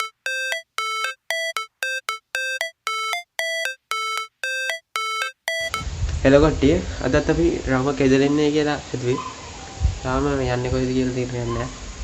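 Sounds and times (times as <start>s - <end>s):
electronic beeps: 0.0s - 5.9s.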